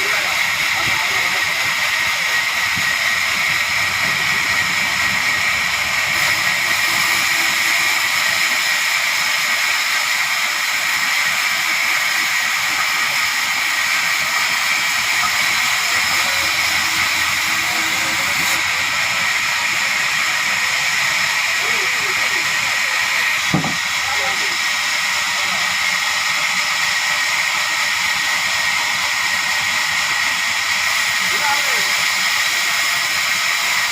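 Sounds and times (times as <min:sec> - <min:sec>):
sawmill machinery whining: 0:00.0 - 0:33.9.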